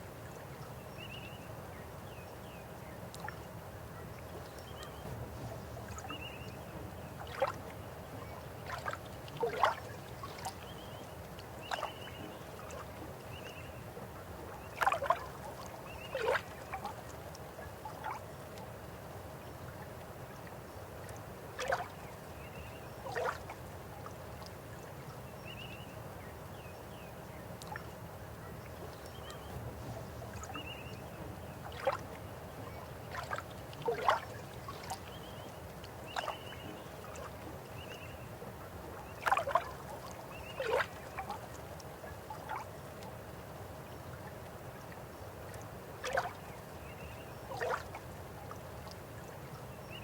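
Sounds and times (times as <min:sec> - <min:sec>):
water gurgles and plops: 0:04.6 - 0:18.7, 0:29.0 - 0:43.2, 0:45.5 - 0:46.5, 0:47.5 - 0:49.4.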